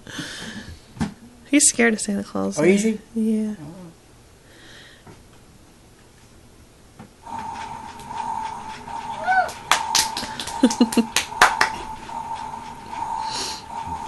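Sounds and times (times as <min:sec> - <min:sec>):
toy washing machine electronic tone: 0:07.3 - 0:14.0.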